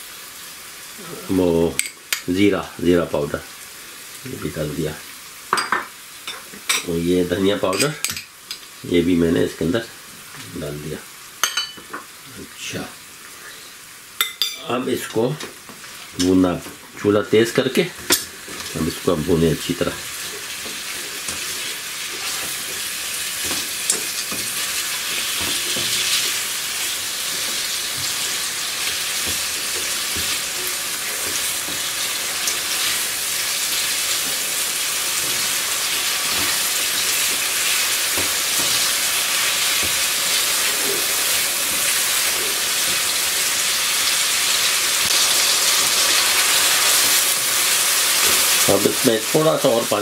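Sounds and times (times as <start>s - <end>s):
chicken sizzling in a wok: 0.0s - 50.0s
spatula scraping a wok: 20.2s - 32.1s.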